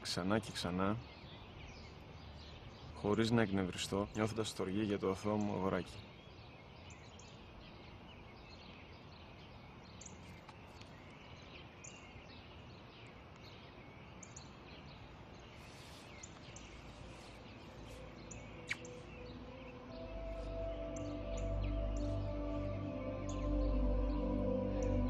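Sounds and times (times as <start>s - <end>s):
faint steady hiss: 0.0s - 25.0s
small birds chirping: 0.0s - 25.0s.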